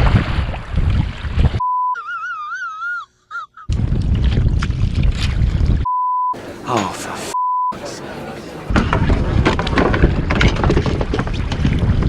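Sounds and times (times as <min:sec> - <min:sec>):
wind buffeting microphone: 0:00.0 - 0:01.6, 0:03.7 - 0:05.9, 0:08.7 - 0:12.0
short steady beep: 0:01.6 - 0:02.0, 0:05.9 - 0:06.4, 0:07.3 - 0:07.8.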